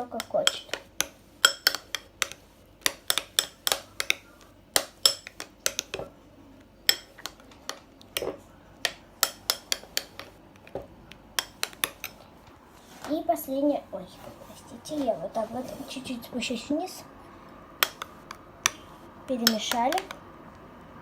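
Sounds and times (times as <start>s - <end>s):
spoon clinking against bowl: 1.4s - 4.2s.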